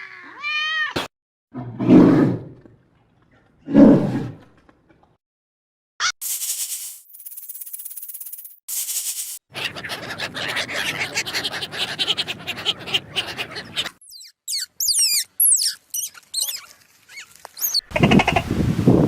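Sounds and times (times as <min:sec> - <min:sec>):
scratchy rustling with quick ticks: 0:06.2 - 0:09.4
high-pitched animal calls: 0:09.5 - 0:18.4.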